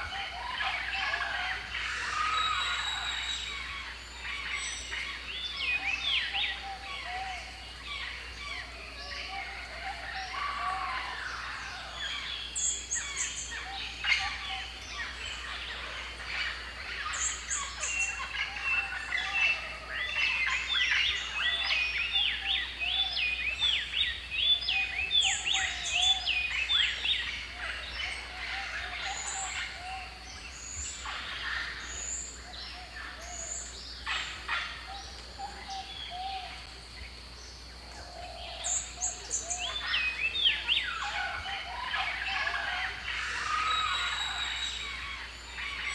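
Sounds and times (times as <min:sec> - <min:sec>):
birds chirping: 0:00.0 - 0:45.9
lower whistled notes: 0:43.4 - 0:45.9.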